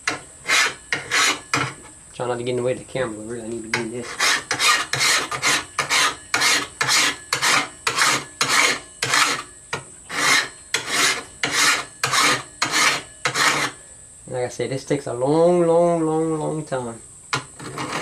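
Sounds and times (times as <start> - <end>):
file rasping on steel blade: 0.0 - 1.8, 3.8 - 9.5, 10.1 - 13.8, 17.4 - 18.0.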